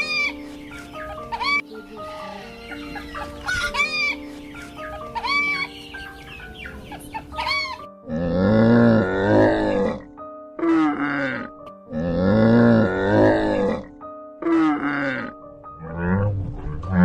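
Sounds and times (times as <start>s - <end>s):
bird squawks: 0.0s - 7.9s
background music: 0.0s - 17.0s
low drawn-out animal grunt: 8.1s - 17.0s.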